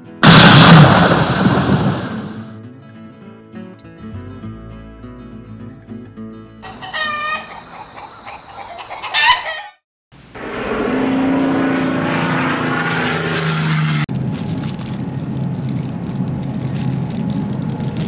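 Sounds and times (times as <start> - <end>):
loud rushing with low drone: 0.2 - 2.5, 10.3 - 14.7
rooster crowing: 6.6 - 9.8
plastic wrapping crinkling: 14.1 - 18.0.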